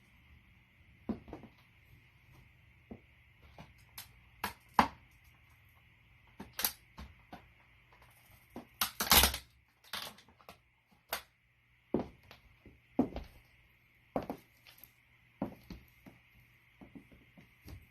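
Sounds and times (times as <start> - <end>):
plastic toy cracking underfoot: 8.8 - 10.3.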